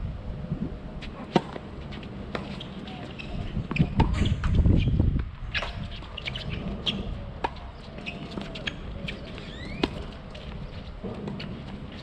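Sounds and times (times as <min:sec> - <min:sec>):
birds chirping and whistling: 0:07.8 - 0:09.8.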